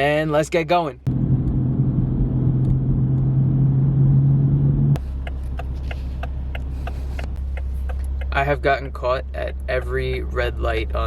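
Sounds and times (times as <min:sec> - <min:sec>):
car engine hum: 0:00.0 - 0:11.0
engine idling hum: 0:00.0 - 0:11.0
turn signal clicking: 0:05.0 - 0:08.5.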